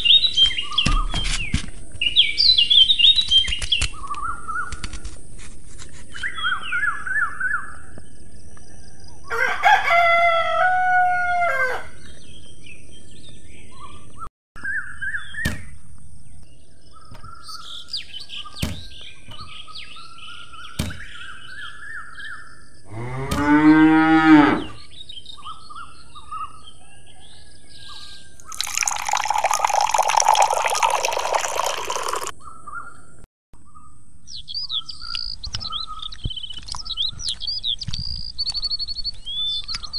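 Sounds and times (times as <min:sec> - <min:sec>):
rooster crowing: 0:09.3 - 0:12.0
small birds chirping: 0:12.0 - 0:23.3, 0:24.6 - 0:39.9.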